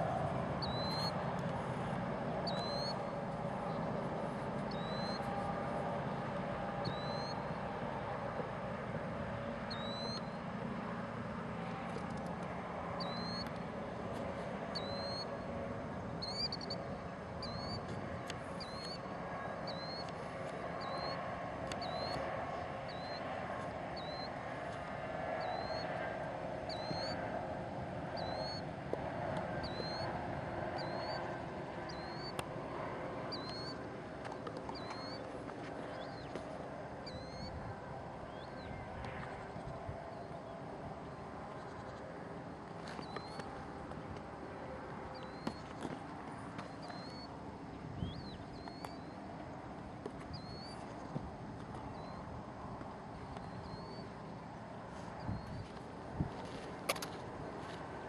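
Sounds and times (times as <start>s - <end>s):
small bird call notes: 0.6s - 1.2s, 2.4s - 3.1s, 4.7s - 5.4s, 6.8s - 7.5s, 9.7s - 10.4s, 13.0s - 13.6s, 14.7s - 15.4s, 16.2s - 17.9s, 18.5s - 20.2s, 20.8s - 23.3s, 24.0s - 24.4s, 25.4s - 26.0s, 26.7s - 27.2s, 28.2s - 28.7s, 29.6s - 30.1s, 30.8s - 31.2s, 31.8s - 32.4s, 33.3s - 33.8s, 34.7s - 36.4s, 37.0s - 37.6s, 42.9s - 43.5s, 45.1s - 45.7s, 46.6s - 47.3s, 48.0s - 49.2s, 50.3s - 50.9s, 53.2s - 54.2s.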